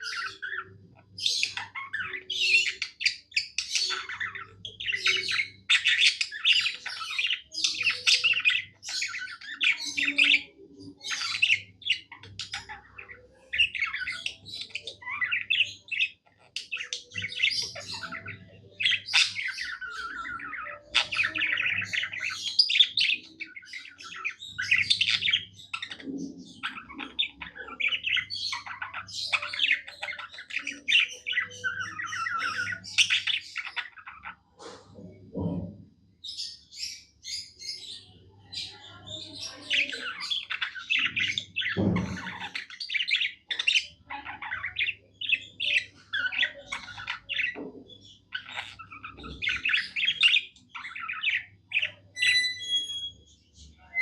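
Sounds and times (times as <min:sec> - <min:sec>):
budgerigar warbling and chirping: 0:00.0 - 0:35.7, 0:36.3 - 0:54.0.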